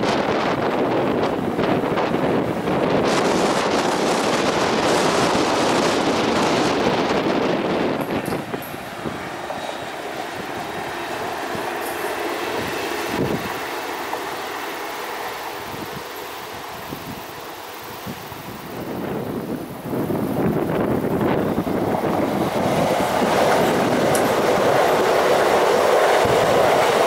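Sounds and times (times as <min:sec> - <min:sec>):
wind on the microphone: 0:00.0 - 0:11.7, 0:18.0 - 0:27.0
train wheels rushing on rail: 0:00.0 - 0:27.0.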